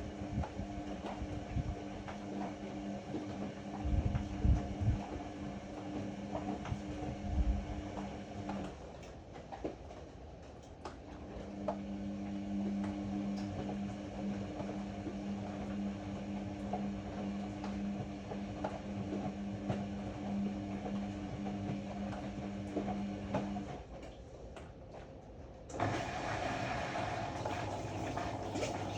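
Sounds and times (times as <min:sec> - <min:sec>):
washer motor hum: 0:00.0 - 0:28.9.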